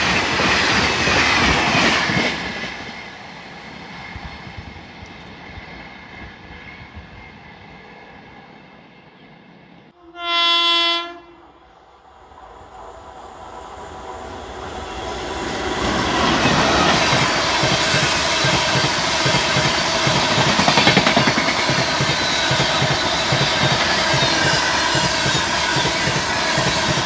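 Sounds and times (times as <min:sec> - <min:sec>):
steady rail noise: 0:00.0 - 0:27.0
train rumble and wheels on rails: 0:00.0 - 0:27.0
train horn blast: 0:09.9 - 0:11.8.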